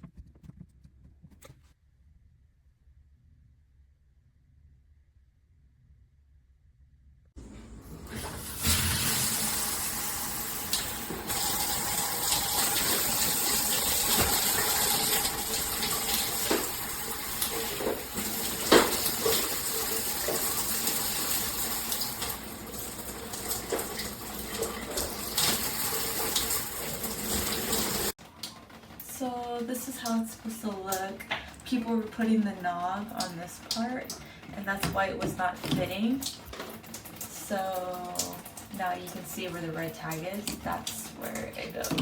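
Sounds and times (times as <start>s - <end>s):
water spraying from shower head: 7.9s - 28.2s.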